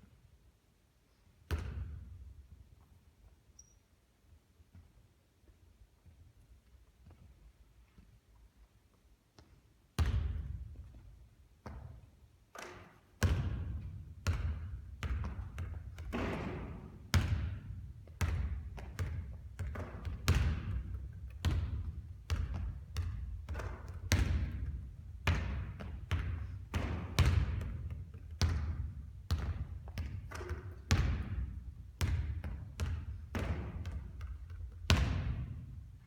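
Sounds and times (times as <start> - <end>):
basketball bouncing on court: 1.5 - 2.4, 9.4 - 35.8.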